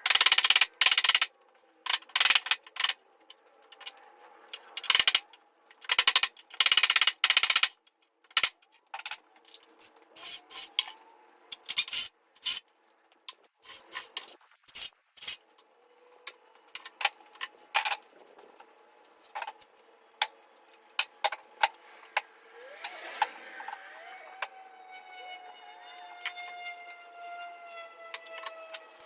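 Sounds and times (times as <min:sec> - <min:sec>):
distant siren rising and falling: 0:21.7 - 0:29.0.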